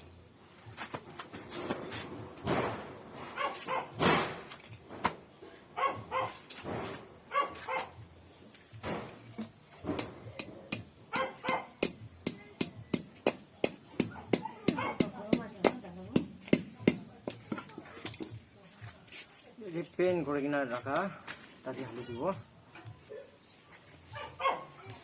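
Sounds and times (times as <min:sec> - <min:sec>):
dog barking: 0:03.4 - 0:04.0, 0:05.8 - 0:06.4, 0:07.3 - 0:08.0, 0:11.1 - 0:11.8, 0:14.1 - 0:15.0, 0:24.1 - 0:25.0
sharp taps and knocks: 0:08.8 - 0:18.4.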